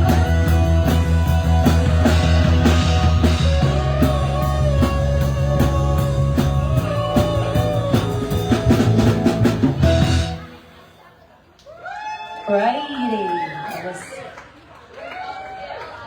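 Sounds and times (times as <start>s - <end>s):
bass guitar: 0.0s - 10.8s
drum kit: 0.0s - 10.9s
electric guitar: 0.0s - 11.0s.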